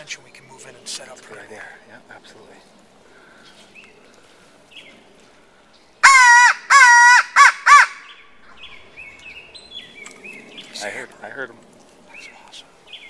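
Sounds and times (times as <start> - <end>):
crow call caws: 6.0 - 8.2.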